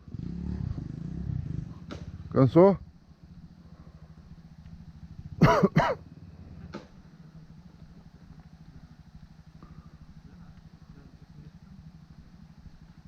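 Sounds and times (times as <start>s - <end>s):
dirt bike engine idling: 0.0s - 13.0s
person coughing: 5.4s - 6.0s.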